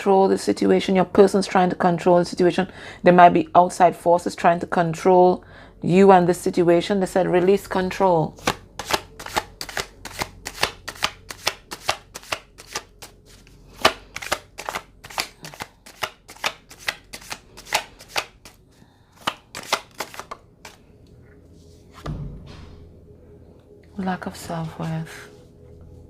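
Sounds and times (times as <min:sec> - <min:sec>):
cards being shuffled: 0:08.4 - 0:18.6, 0:19.2 - 0:20.9
soft low thump: 0:22.0 - 0:22.9.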